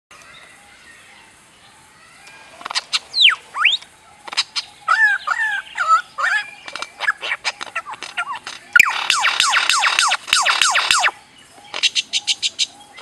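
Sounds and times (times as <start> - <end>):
bird laser-like whistles and clicks: 6.6 - 13.0.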